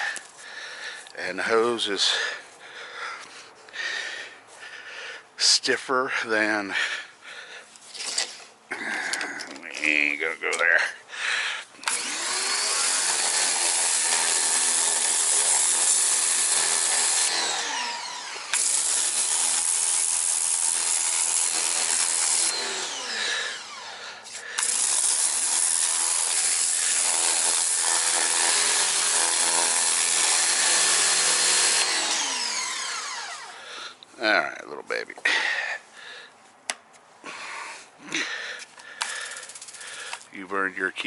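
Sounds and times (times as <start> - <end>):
pump motor winding down whine: 11.8 - 20.7, 21.3 - 24.0, 31.2 - 33.6.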